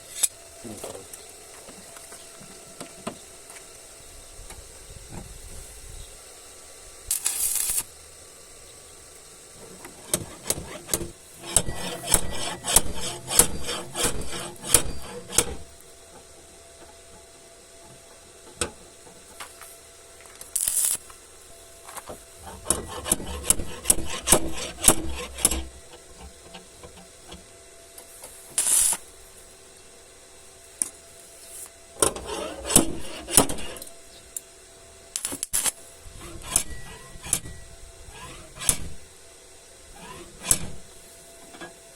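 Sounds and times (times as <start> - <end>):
short bursts of hiss: 3.2 - 16.0, 19.3 - 27.3, 28.1 - 29.6, 30.6 - 34.4
hand sanding rasping strokes: 10.0 - 15.8, 22.4 - 27.1, 31.4 - 34.2, 36.0 - 39.1, 39.9 - 41.6.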